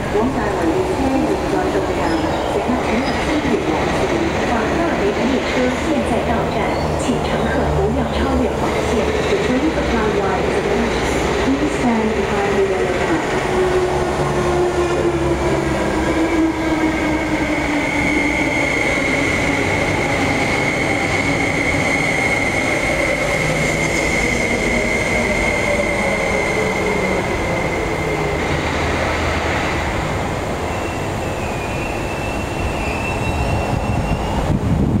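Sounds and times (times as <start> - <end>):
train running rumble: 0.0 - 31.2
high steady squeal: 30.6 - 34.5.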